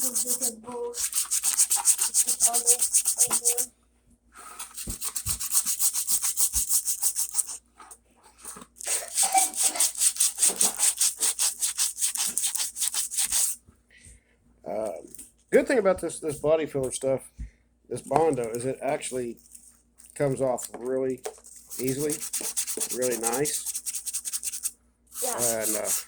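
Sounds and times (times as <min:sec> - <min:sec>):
sandpaper rubbing: 0:00.0 - 0:03.7, 0:04.7 - 0:07.6, 0:08.8 - 0:13.6, 0:21.5 - 0:26.0.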